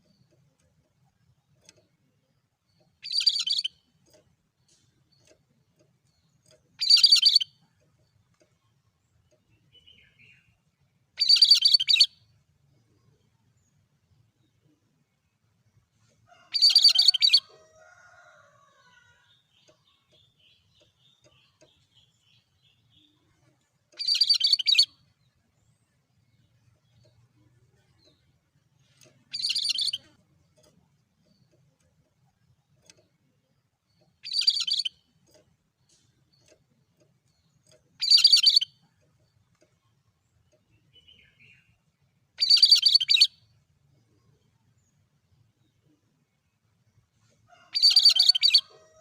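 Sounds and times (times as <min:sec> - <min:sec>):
scattered ticks: 0:27.0 - 0:39.8.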